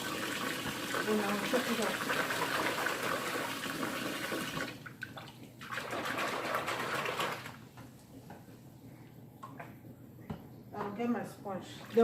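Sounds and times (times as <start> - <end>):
tap water running into container: 0.0 - 7.6.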